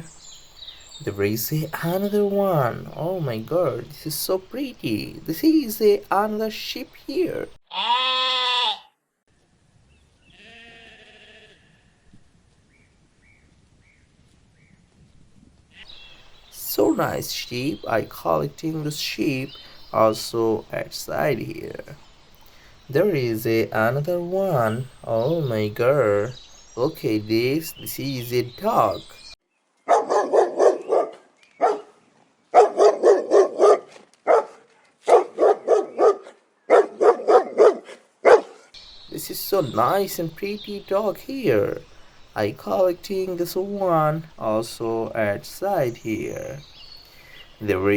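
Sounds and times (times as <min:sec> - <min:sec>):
sheep bleating: 0:07.7 - 0:09.0, 0:10.3 - 0:12.1
dog barking: 0:29.9 - 0:38.7
faint high chirps: 0:38.8 - 0:44.9.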